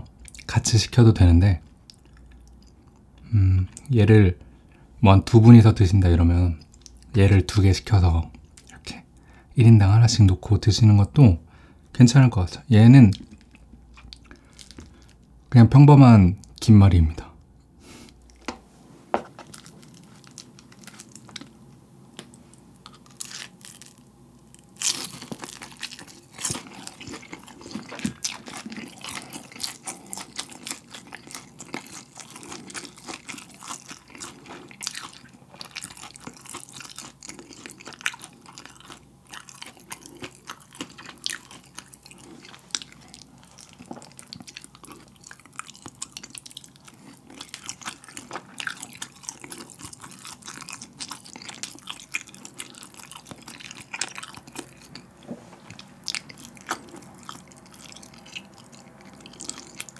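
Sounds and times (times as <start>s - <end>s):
crunching and chewing: 1.6s - 3.9s, 6.5s - 7.1s, 13.1s - 15.5s, 18.1s - 18.6s, 19.3s - 21.6s, 22.2s - 59.9s.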